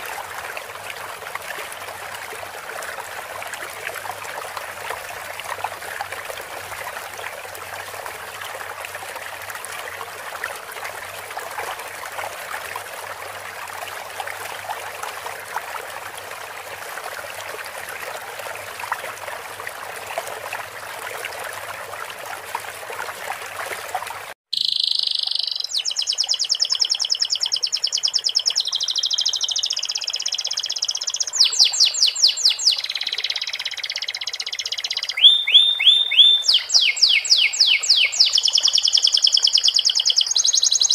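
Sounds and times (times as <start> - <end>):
trickling running water: 0.0 - 40.9
canary singing: 24.5 - 40.9.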